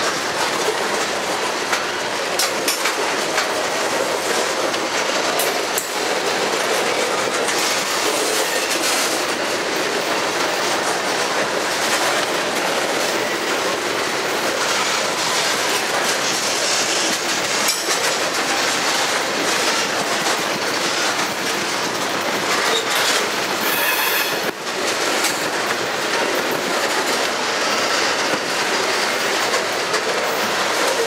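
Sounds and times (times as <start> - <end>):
train wheels rumbling on rail: 0.0 - 31.0
wheels clacking over rail joints: 0.0 - 31.0
high wheel squeal: 22.7 - 24.5.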